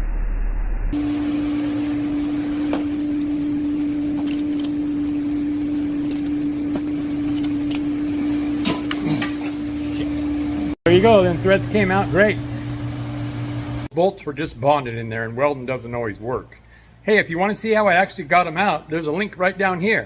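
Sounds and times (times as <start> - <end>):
dull low hum: 0.0 - 10.8
steady even hum: 1.0 - 13.9.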